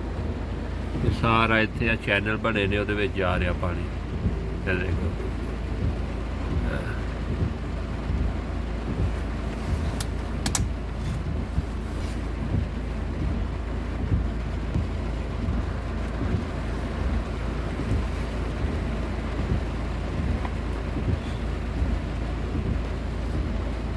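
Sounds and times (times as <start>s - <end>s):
heavy rain: 0.0s - 23.9s
wind rumbling on microphone: 3.2s - 23.9s
sharp clicks: 10.0s - 10.8s.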